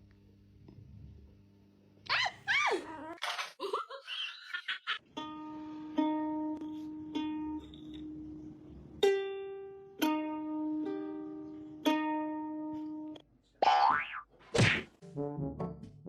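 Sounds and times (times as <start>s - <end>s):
ukulele plucked notes: 5.1s - 13.2s.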